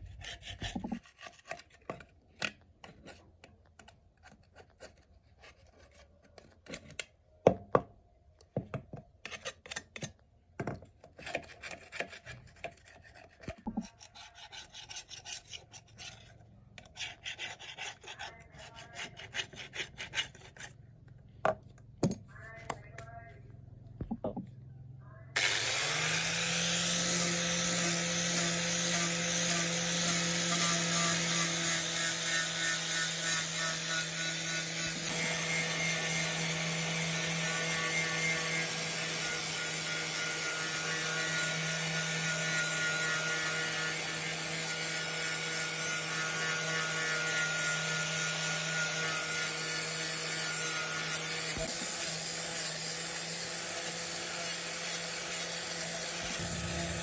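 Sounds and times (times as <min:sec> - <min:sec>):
power tool motor hum: 0:25.4 - 0:46.7, 0:47.3 - 0:57.0
grinding on metal: 0:25.4 - 0:57.0.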